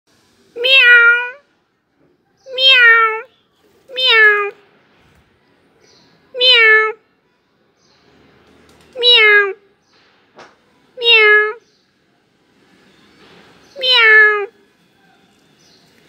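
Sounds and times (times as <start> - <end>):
cat meowing: 0.6 - 1.4, 2.4 - 3.3, 3.9 - 4.6, 6.3 - 7.0, 9.0 - 9.6, 11.0 - 11.6, 13.7 - 14.5.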